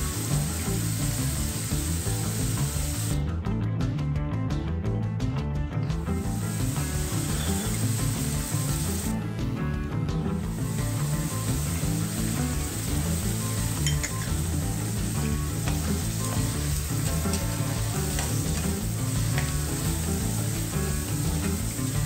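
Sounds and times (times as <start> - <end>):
vegetables sizzling in a pan: 0.0 - 3.2, 6.2 - 9.1, 10.5 - 22.0
background music: 0.0 - 22.0.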